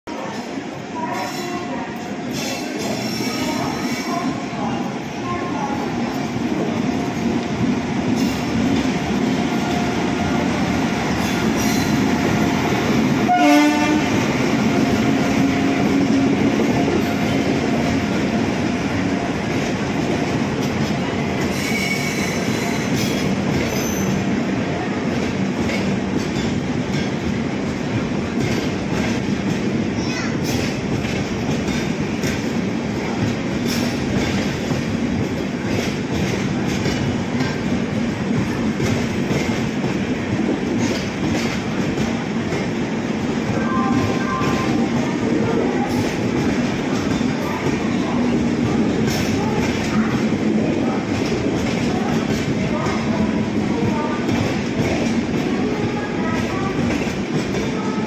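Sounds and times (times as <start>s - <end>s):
train wheels on rail: 0.1s - 58.0s
train horn blast: 13.3s - 14.3s.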